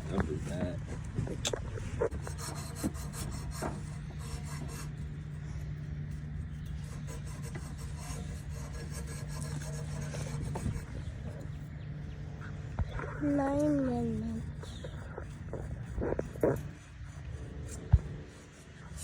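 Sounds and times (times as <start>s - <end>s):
steady low hum: 0.0s - 19.0s
rapid rasping strokes on metal: 2.1s - 11.2s.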